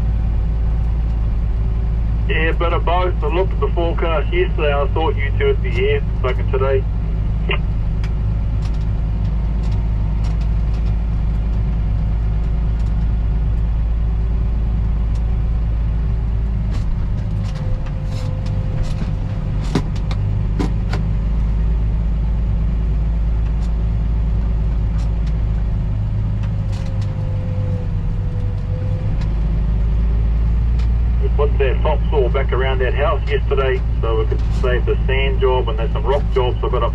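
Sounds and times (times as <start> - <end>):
engine running steadily: 0.0 - 36.9.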